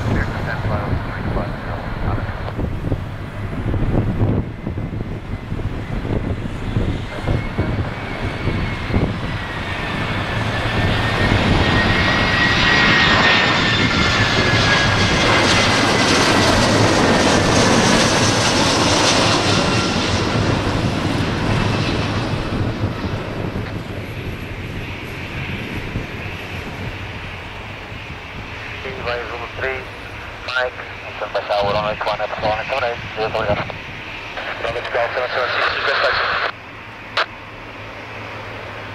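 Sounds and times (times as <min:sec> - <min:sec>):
jet airliner roaring past: 0:00.0 - 0:38.9.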